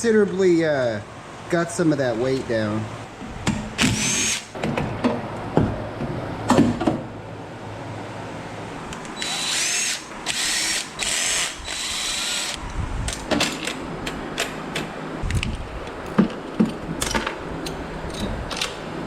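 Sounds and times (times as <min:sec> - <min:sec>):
power drill whining: 0:03.8 - 0:04.5, 0:09.2 - 0:12.6.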